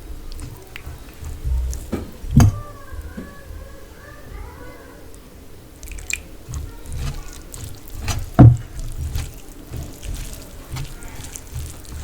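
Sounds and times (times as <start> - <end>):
chewing and wet mouth sounds: 0.0 - 2.6, 5.1 - 12.0
lip smacks: 0.3 - 2.0, 5.8 - 12.0
loud thump: 8.0 - 9.2.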